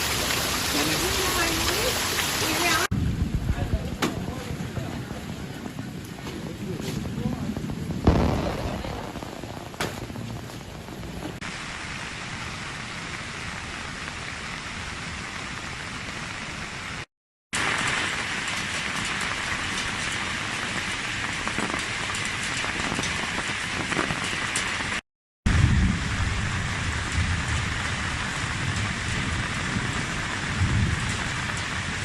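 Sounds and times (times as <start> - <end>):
rushing water: 0.0 - 2.9.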